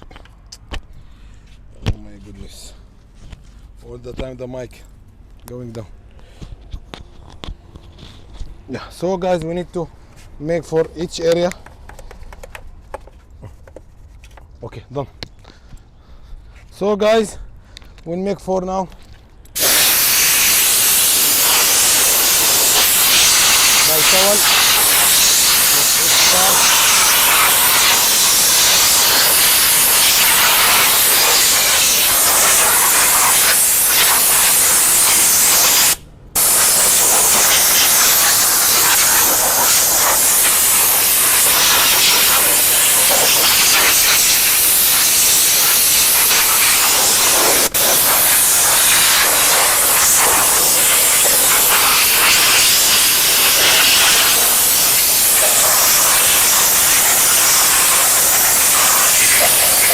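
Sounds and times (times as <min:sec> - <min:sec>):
spray gun hissing: 0:19.6 - 0:59.9.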